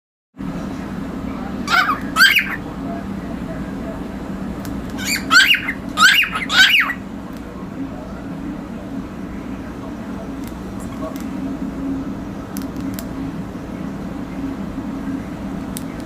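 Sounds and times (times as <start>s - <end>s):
steady low hum: 0.4s - 16.0s
cockatiel squawking chirps: 1.7s - 2.6s, 5.0s - 7.0s.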